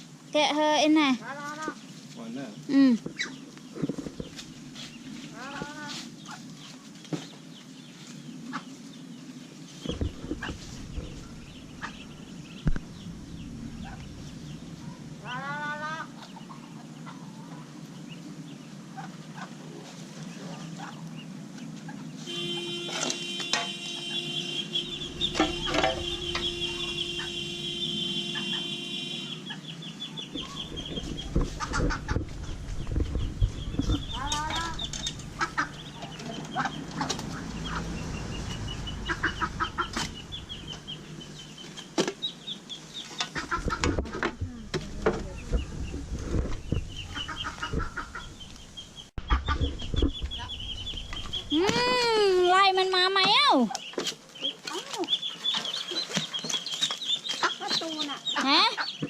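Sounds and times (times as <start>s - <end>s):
fowl peeping and clucking: 0.6s - 59.0s
hum with ringing tones: 22.3s - 29.4s.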